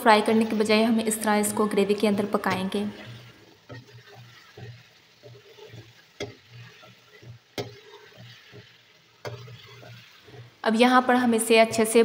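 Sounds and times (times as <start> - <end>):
meat sizzling in masala: 0.0 - 12.0
metal spatula stirring in pan: 0.0 - 12.0
spatula clicking on pan: 3.0 - 10.6.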